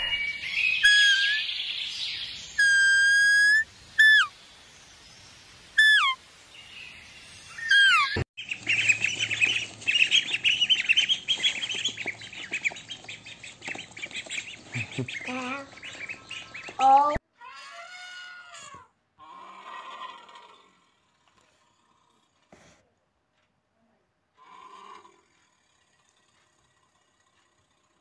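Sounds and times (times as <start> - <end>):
whistled bird calls: 0.0 - 4.4, 5.8 - 6.2, 7.5 - 12.2
flock of birds chirping: 0.0 - 17.2.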